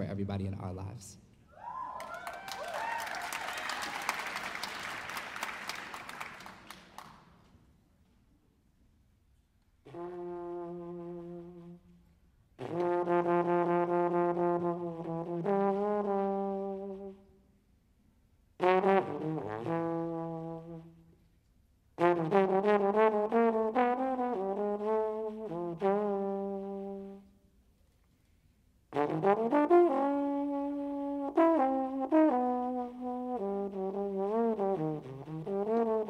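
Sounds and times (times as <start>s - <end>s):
solo jazz brass instrument: 9.7s - 17.5s, 18.5s - 27.7s, 28.8s - 36.0s.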